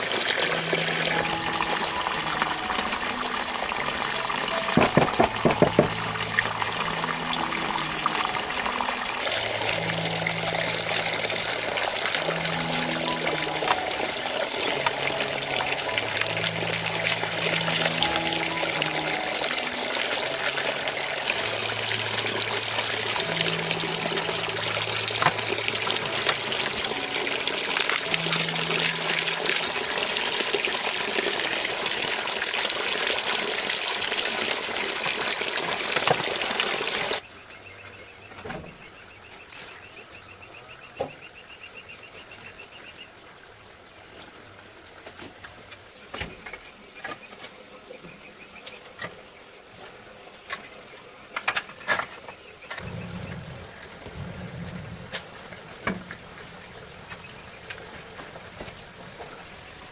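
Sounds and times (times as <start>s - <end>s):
water pouring: 0.0s - 37.2s
soft background music: 0.0s - 59.9s.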